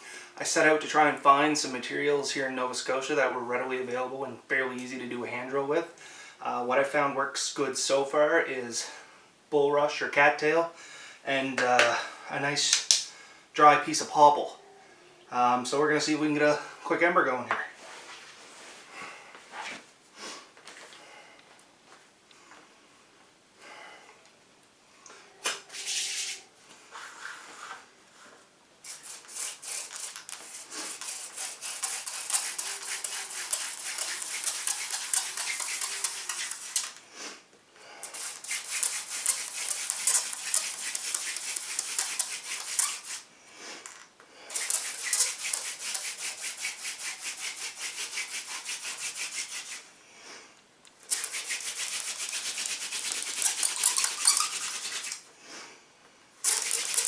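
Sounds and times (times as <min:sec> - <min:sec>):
hand drill spindle rubbing wood: 0:28.9 - 0:37.0, 0:38.0 - 0:43.3, 0:44.5 - 0:49.9, 0:51.1 - 0:55.3, 0:56.4 - 0:57.0.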